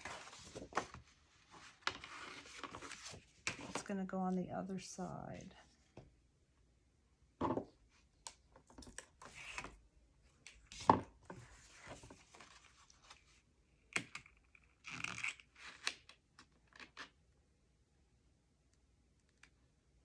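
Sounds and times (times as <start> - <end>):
paper rustling and scraping: 0.0 - 3.9, 10.7 - 13.4.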